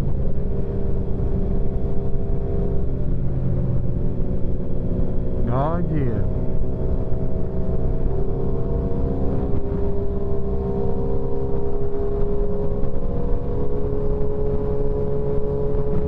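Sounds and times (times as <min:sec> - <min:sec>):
wind and road noise: 0:06.4 - 0:16.0.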